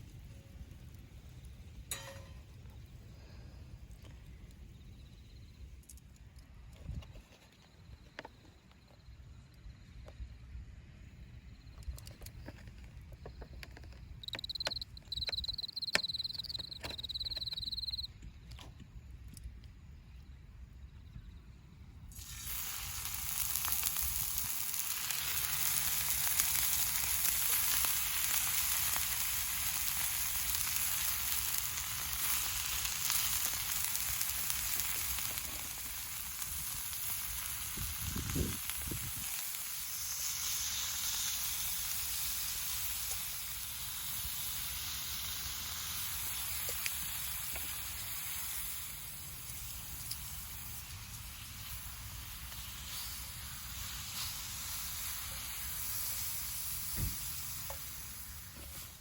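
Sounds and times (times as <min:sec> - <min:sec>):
food sizzling in a pan: 0:22.1 - 0:59.0.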